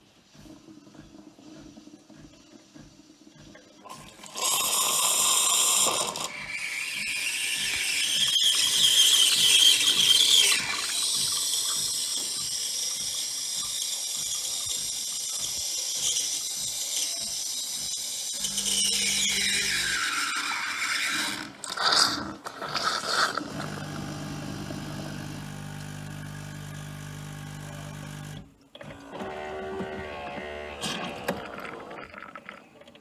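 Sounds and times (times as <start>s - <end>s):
coffee machine hissing and gurgling: 3.8s - 28.5s.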